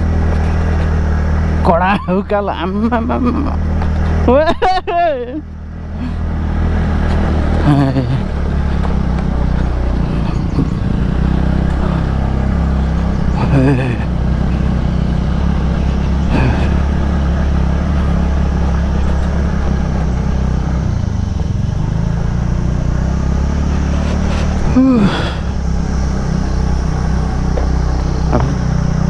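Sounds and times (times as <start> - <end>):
scooter engine running under load: 0.0 - 29.0
vocal exclamations: 23.8 - 29.0.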